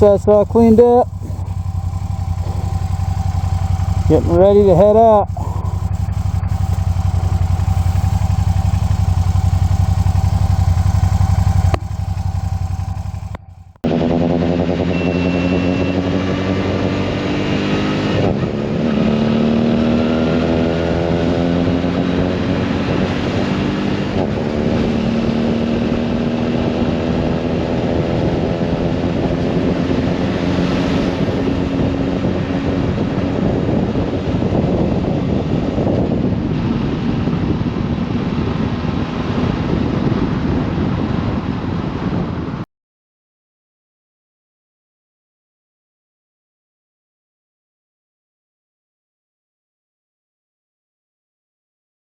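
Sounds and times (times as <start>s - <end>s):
motorcycle engine: 0.0s - 41.6s.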